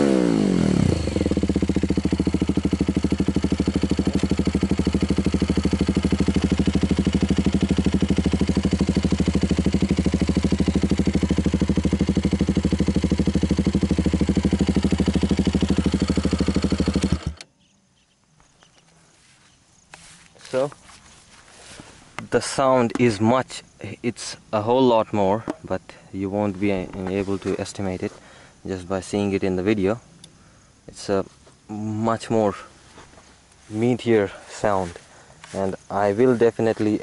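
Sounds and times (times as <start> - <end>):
motorcycle engine idling: 0.0 - 17.4, 32.4 - 37.0.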